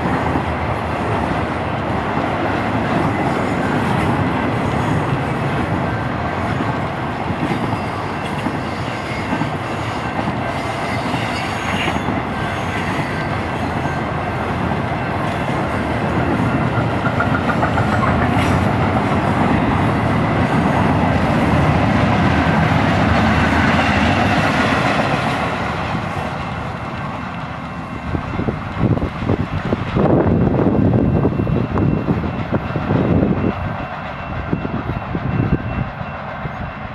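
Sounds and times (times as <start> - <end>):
freight train wheels clickety-clack: 0.0 - 36.9
high wheel squeal: 7.6 - 14.2.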